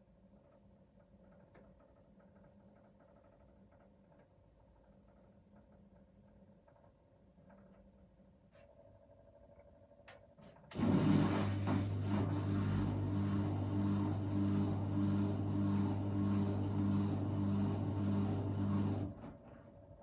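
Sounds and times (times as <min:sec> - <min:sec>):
washing machine drain pump humming: 0:10.7 - 0:20.0.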